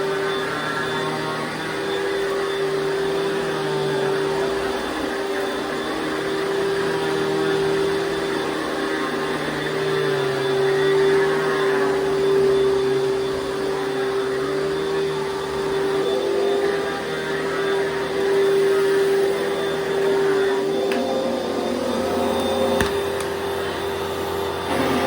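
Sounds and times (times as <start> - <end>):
vacuum cleaner motor whining: 0.0 - 25.0.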